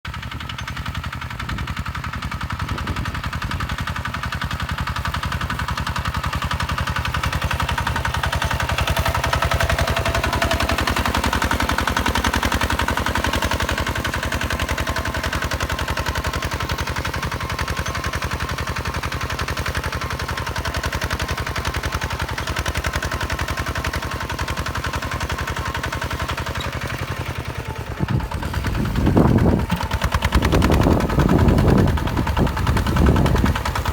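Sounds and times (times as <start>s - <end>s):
diesel engine chugging: 0.1s - 33.9s
loud low rumbles: 27.8s - 33.9s.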